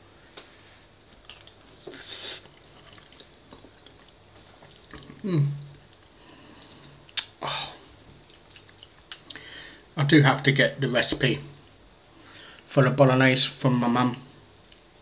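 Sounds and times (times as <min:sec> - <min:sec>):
soft chewing: 0:01.1 - 0:09.4
wet mouth clicks: 0:01.2 - 0:07.4, 0:08.2 - 0:09.4.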